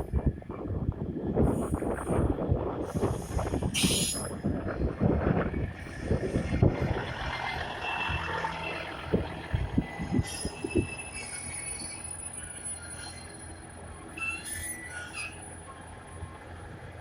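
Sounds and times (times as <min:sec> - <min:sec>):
high-pitched brake squeal: 0:03.8 - 0:04.3, 0:09.8 - 0:15.9.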